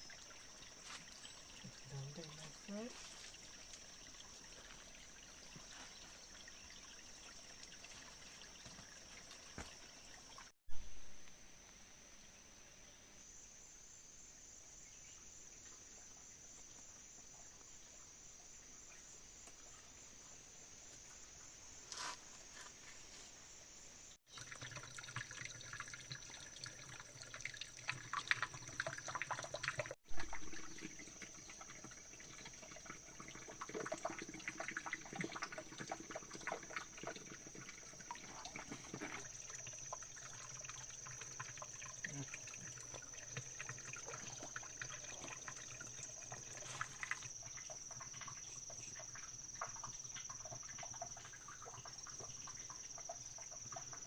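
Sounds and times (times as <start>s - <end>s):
water splashing and trickling: 0.0s - 11.3s, 24.1s - 54.0s.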